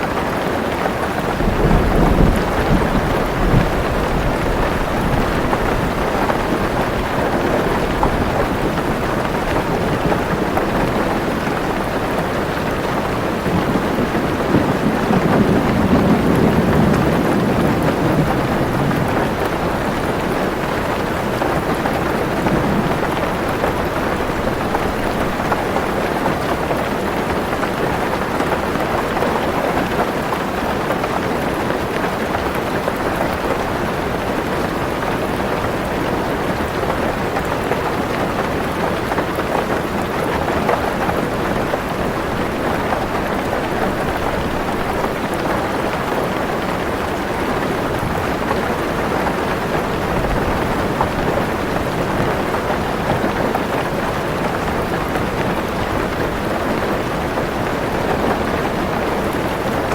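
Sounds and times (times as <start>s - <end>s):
heavy rain on a car roof: 0.0s - 59.9s.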